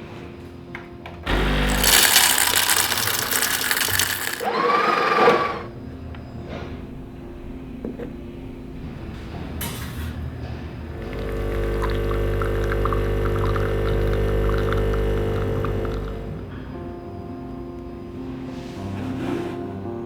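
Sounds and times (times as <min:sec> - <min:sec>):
coffee grinder motor running: 0:01.3 - 0:05.7, 0:11.0 - 0:16.4.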